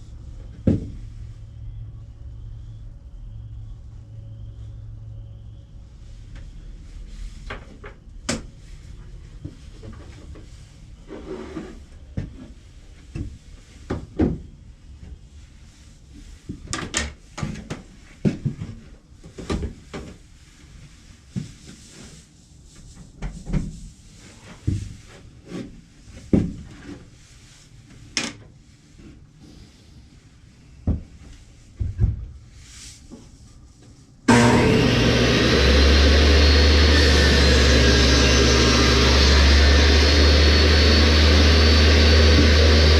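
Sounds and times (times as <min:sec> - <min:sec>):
wood rubbing on wood: 0:34.3 - 0:42.9.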